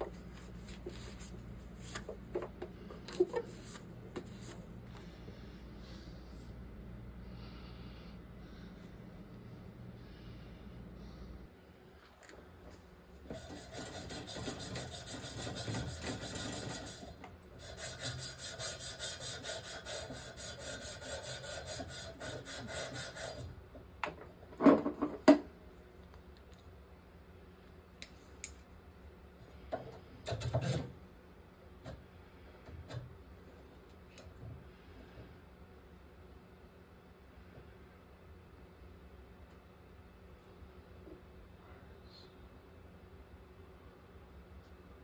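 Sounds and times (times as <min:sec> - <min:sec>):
hand tool rasping on pipe: 0:13.3 - 0:23.5.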